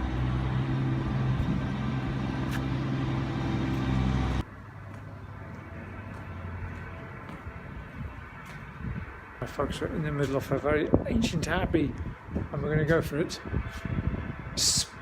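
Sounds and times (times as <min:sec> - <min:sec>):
vehicle engine humming: 0:00.0 - 0:09.9
outdoor background: 0:00.0 - 0:15.0.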